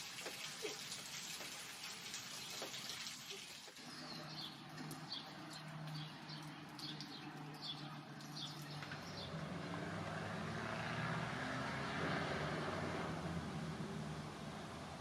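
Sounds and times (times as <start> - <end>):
songbird chirping: 3.8 - 10.2.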